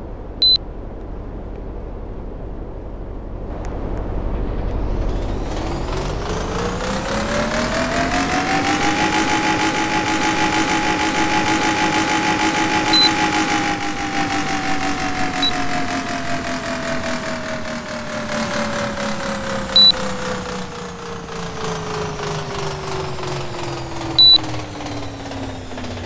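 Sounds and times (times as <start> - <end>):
air conditioner motor whine: 0.0 - 26.0
short high beeps: 8.8 - 14.0, 24.2 - 24.5.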